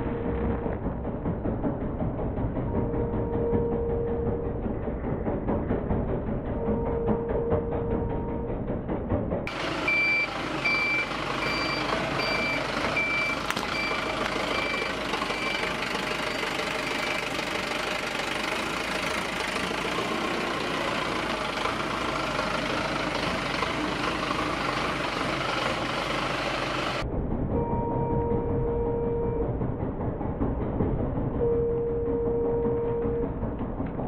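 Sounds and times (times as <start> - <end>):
truck reversing alarm beeping: 0.0 - 0.7, 2.6 - 4.7, 6.6 - 8.6, 9.5 - 17.6, 26.9 - 29.6, 31.4 - 33.4
truck engine running: 0.0 - 34.0.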